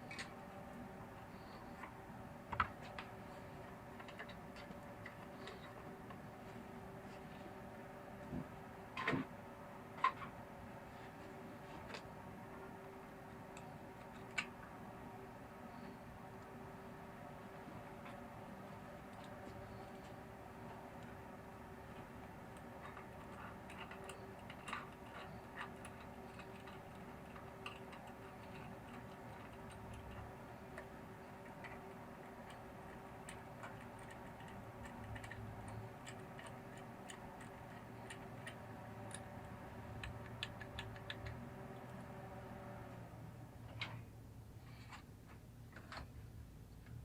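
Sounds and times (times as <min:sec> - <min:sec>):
steady hum: 0:00.0 - 0:47.0
light clicks and taps: 0:21.9 - 0:42.1.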